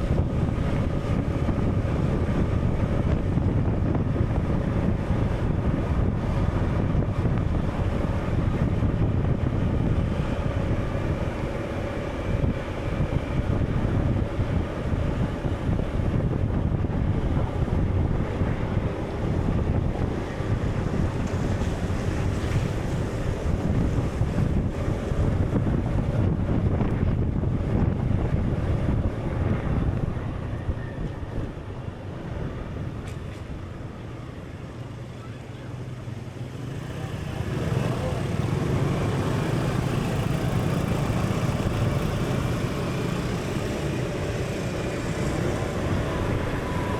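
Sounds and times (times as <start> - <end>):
rushing wind: 0.0 - 46.9
surging water: 17.7 - 46.9.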